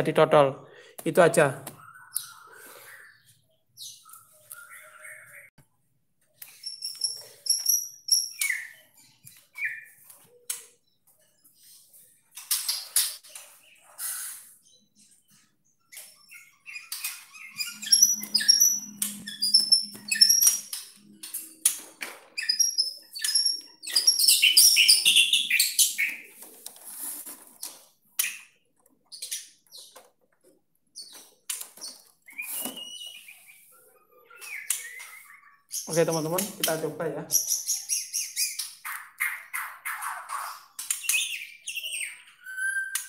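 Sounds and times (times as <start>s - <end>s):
birds chirping and squawking: 0.7s - 5.6s, 6.4s - 43.0s.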